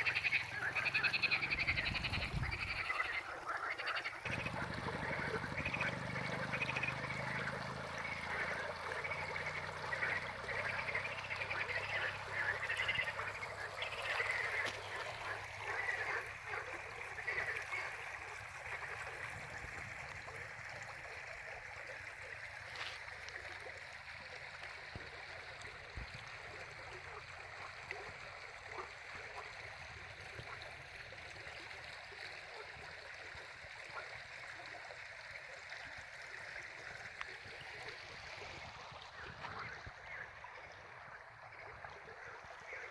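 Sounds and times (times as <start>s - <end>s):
chorus of animal calls: 0.0s - 17.7s.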